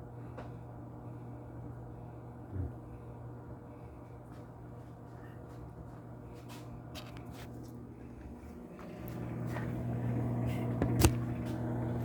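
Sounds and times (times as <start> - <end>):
microwave oven humming: 0.0 - 12.0
microwave clicks: 8.8 - 12.0.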